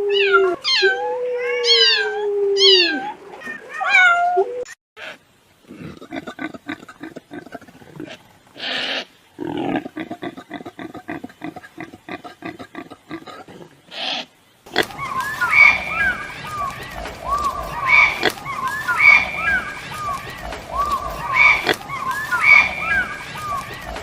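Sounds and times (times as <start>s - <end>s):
large animal grunting: 5.6s - 14.1s
high gliding animal chirps: 14.7s - 24.0s.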